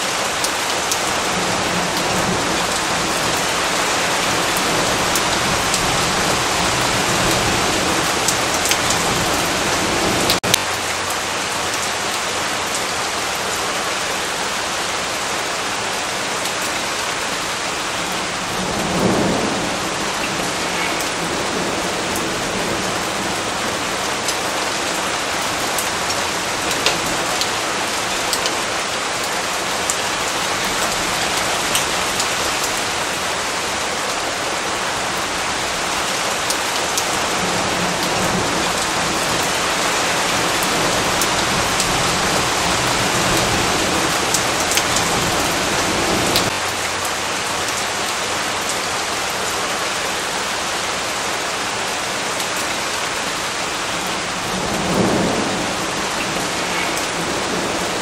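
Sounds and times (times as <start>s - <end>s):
steady rain falling: 0.0s - 58.0s
rumble of thunder: 18.4s - 23.4s.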